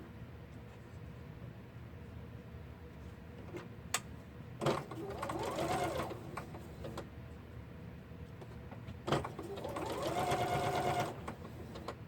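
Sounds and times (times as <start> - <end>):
sewing machine motor hum: 4.6 - 6.5, 9.1 - 11.8.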